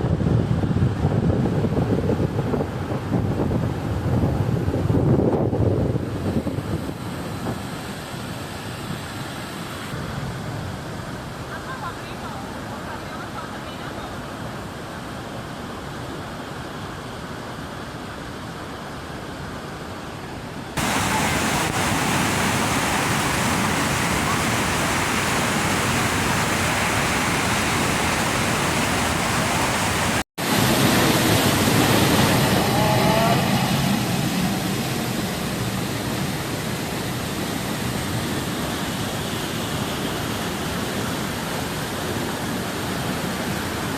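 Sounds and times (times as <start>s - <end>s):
waterfall rushing: 20.8s - 43.9s.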